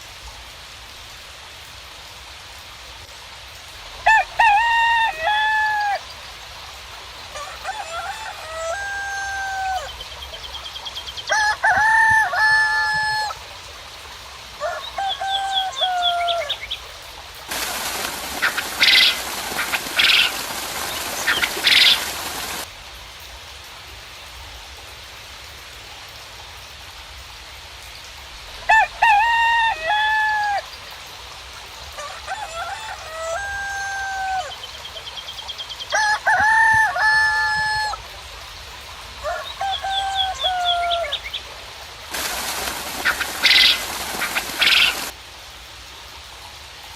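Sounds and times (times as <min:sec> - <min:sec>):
roosters crowing: 0:04.0 - 0:06.0, 0:07.3 - 0:10.0, 0:11.3 - 0:13.4, 0:14.6 - 0:16.6, 0:17.5 - 0:22.7, 0:28.7 - 0:30.7, 0:32.0 - 0:34.6, 0:35.9 - 0:38.0, 0:39.2 - 0:41.3, 0:42.1 - 0:45.1
small birds chirping: 0:17.5 - 0:22.7, 0:42.1 - 0:45.1.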